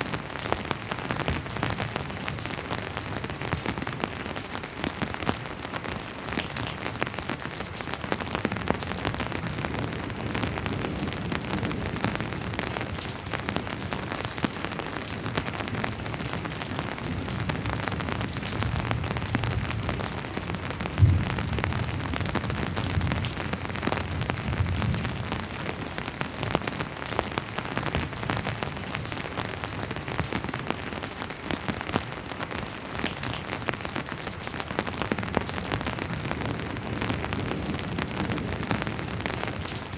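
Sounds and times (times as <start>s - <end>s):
rain pattering: 0.0s - 39.9s
distant thunder rumble: 18.6s - 25.2s.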